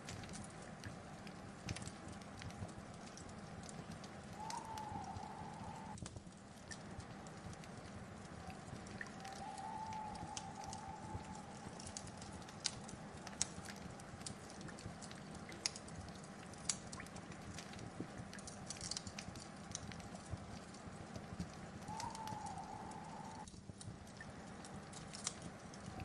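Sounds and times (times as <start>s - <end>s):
wood fire crackling: 0.0s - 26.0s
thin whistling tone: 4.4s - 6.0s, 9.0s - 12.2s, 21.8s - 23.5s.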